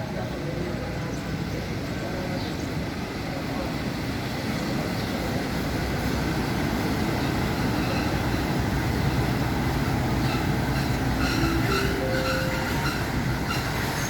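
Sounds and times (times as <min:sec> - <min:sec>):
train wheels rumbling on rails: 0:00.0 - 0:14.0
thin squealing tones: 0:10.3 - 0:14.0.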